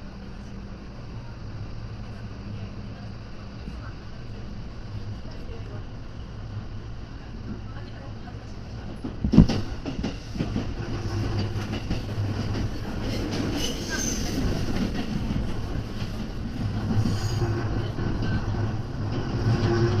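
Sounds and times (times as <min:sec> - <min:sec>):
train wheels rumbling on rail: 0:00.0 - 0:20.0
faint high wheel squeals: 0:13.6 - 0:14.5.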